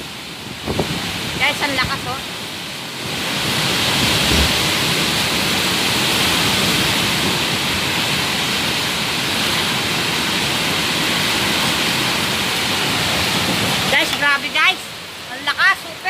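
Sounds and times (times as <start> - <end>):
heavy rain pouring: 0.0 - 16.0
strong wind: 0.0 - 16.0.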